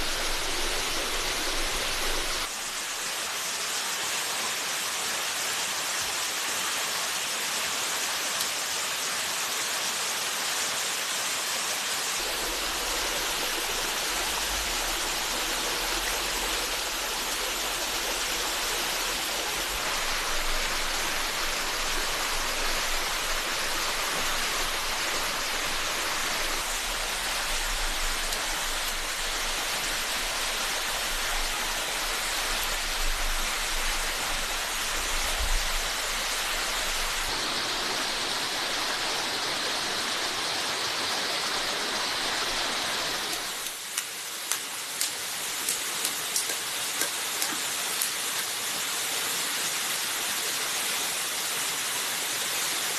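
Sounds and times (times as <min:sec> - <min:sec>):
stream water rushing: 0:00.0 - 0:52.9.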